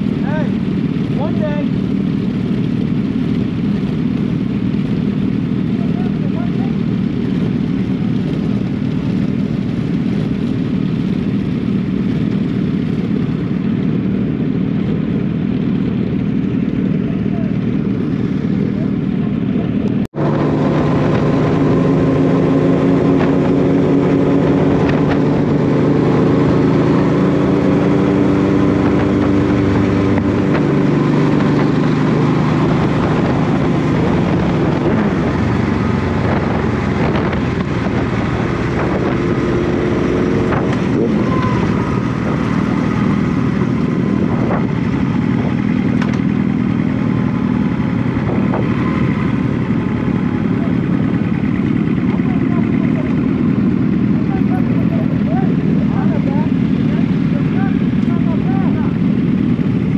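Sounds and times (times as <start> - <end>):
motorcycle engine running: 0.0 - 59.9
wind noise on microphone: 20.1 - 50.6.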